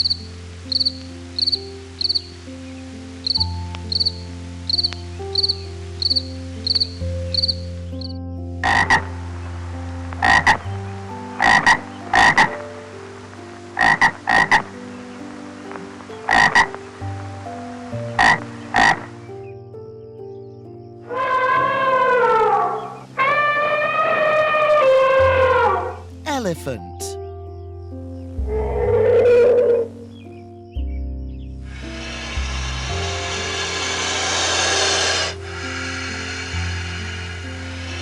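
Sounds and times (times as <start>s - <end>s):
frog high chirp: 0.0s - 2.3s, 3.2s - 9.1s, 10.2s - 10.6s, 11.4s - 12.5s, 16.3s - 16.7s, 18.2s - 19.1s
frogs croaking: 0.0s - 26.2s, 27.1s - 38.0s.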